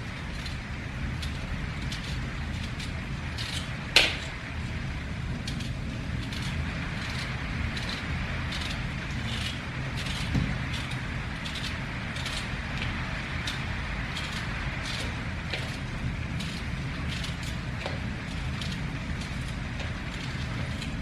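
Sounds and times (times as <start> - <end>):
steady rain: 0.0 - 21.0
dull thump: 10.2 - 10.7.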